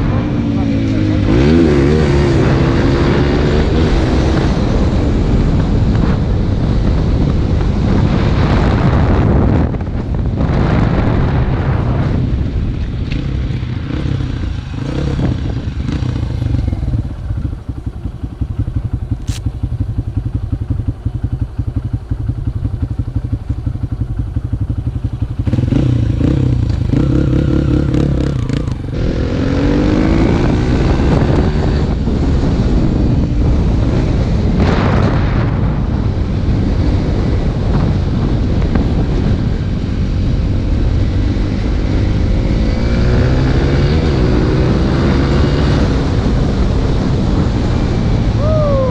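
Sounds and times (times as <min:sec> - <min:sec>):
dirt bike engine revving: 0:00.0 - 0:06.2, 0:13.1 - 0:17.8, 0:25.2 - 0:32.8, 0:40.6 - 0:48.9.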